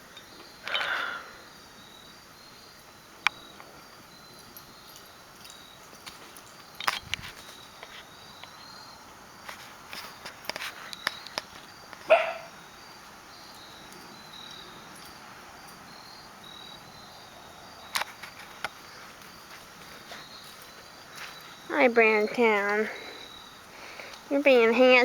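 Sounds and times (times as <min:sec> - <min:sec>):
crickets chirping: 0:00.0 - 0:25.0
puppy bark: 0:12.1 - 0:12.5.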